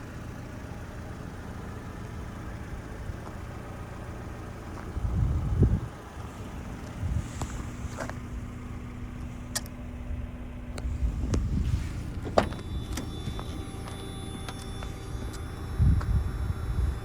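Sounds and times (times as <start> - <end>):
low rumble: 2.6 - 17.0
steady hum: 5.0 - 17.0.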